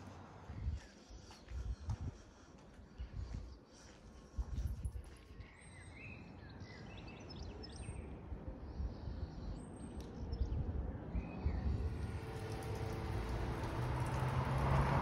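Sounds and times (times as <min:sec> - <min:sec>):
low outdoor rumble: 0:10.1 - 0:15.0.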